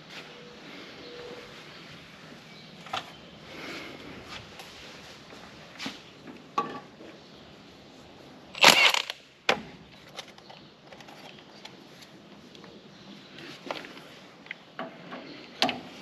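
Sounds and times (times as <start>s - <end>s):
tools and metal parts clattering: 8.6s - 9.1s.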